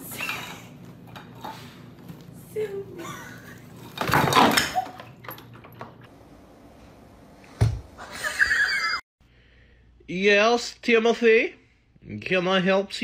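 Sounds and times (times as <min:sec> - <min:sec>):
boxes and bottles clattering: 0:03.7 - 0:06.1.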